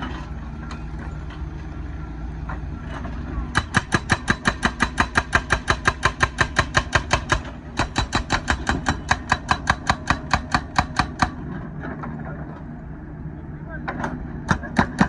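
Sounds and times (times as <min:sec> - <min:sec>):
hydraulic breaker hammering asphalt: 0:03.5 - 0:11.4, 0:14.0 - 0:15.0.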